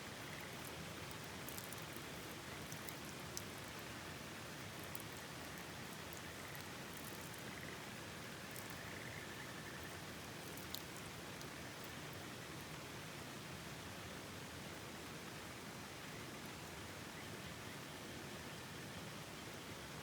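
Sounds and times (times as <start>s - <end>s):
faint frog trills: 6.2s - 10.8s
faint ticks: 8.4s - 12.0s.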